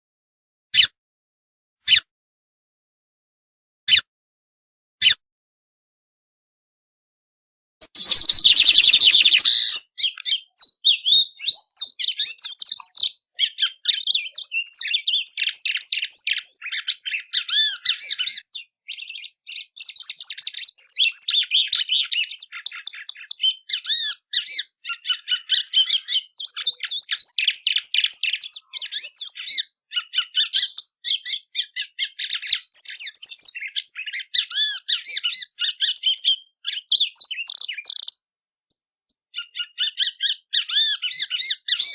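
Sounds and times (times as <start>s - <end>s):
harsh bird call burst: 7.8s - 9.8s
songbird chirps and trills: 7.8s - 38.1s.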